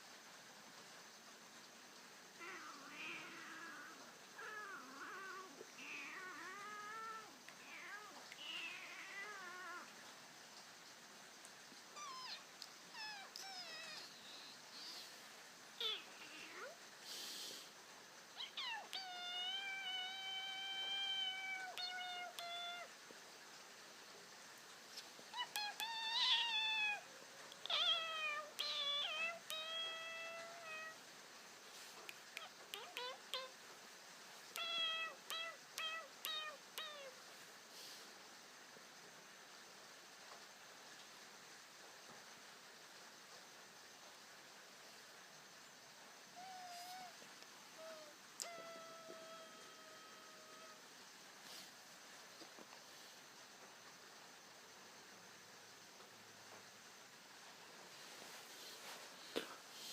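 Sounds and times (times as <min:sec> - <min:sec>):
cat meowing: 0:02.4 - 0:09.9, 0:12.0 - 0:14.2, 0:15.8 - 0:16.8, 0:18.4 - 0:22.9, 0:25.3 - 0:31.0, 0:32.3 - 0:33.6, 0:34.5 - 0:37.2, 0:46.4 - 0:50.8.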